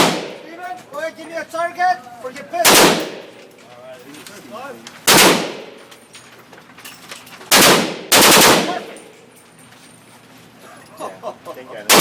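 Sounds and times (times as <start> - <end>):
pistol shots: 0.0 - 0.4, 2.6 - 3.3, 5.1 - 5.8, 7.5 - 9.0.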